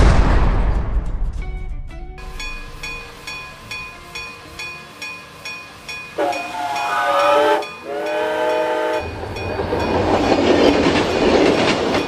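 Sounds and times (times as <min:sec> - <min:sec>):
train passing rumble and clatter: 0:00.6 - 0:12.0
train horn blasts: 0:06.1 - 0:09.2.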